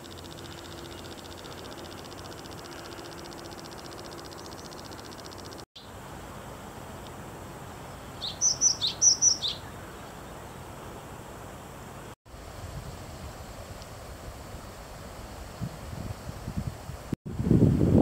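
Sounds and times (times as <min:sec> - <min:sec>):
songbird chirping: 0:00.0 - 0:06.0, 0:07.6 - 0:11.0
outdoor background hiss: 0:00.0 - 0:18.0.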